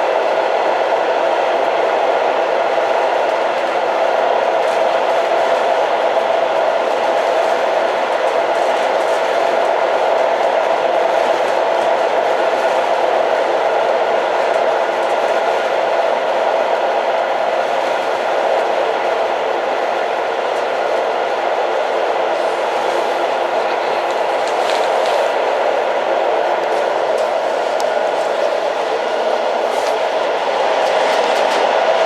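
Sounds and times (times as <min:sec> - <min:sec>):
train rumbling: 0:00.0 - 0:32.0.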